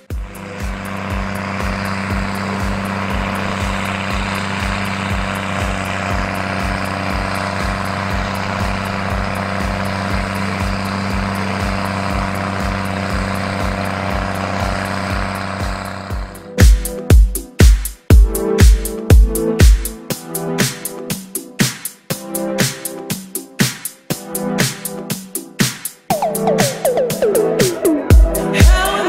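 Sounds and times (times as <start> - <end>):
tractor engine drone: 0.0 - 17.1, 26.1 - 29.0.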